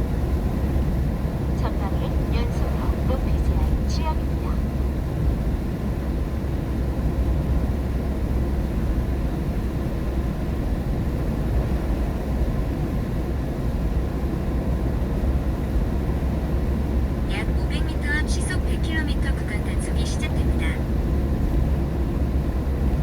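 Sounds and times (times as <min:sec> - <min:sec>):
car road rumble: 0:00.0 - 0:07.7.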